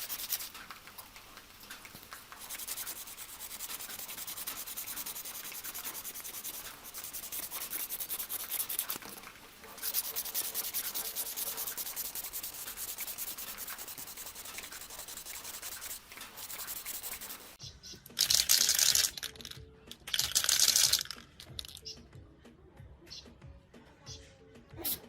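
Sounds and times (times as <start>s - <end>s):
hand sanding strokes: 0.0s - 17.6s
hissing bursts: 0.0s - 17.6s.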